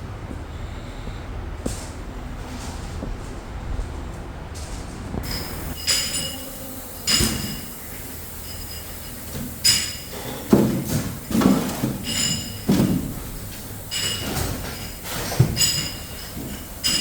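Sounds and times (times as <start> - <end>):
workshop hum: 0.0 - 17.0
metal parts clinking: 5.2 - 17.0
dull knocks and clatter: 8.8 - 17.0.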